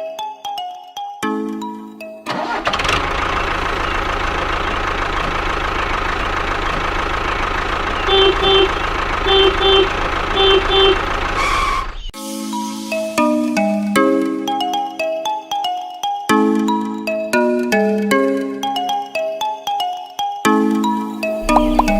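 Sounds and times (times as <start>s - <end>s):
diesel tractor engine idling: 2.4s - 12.1s, 21.4s - 21.9s
horn double beeps: 8.0s - 12.1s, 21.4s - 21.9s.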